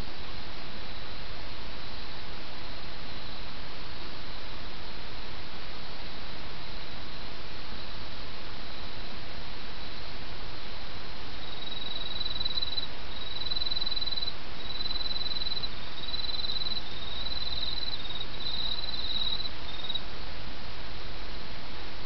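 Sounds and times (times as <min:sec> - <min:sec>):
insect trilling: 0:11.4 - 0:20.0.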